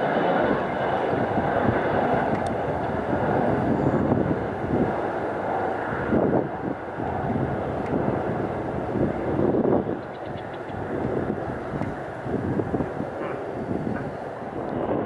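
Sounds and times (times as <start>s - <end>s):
jet engines at takeoff power: 0.0s - 15.0s.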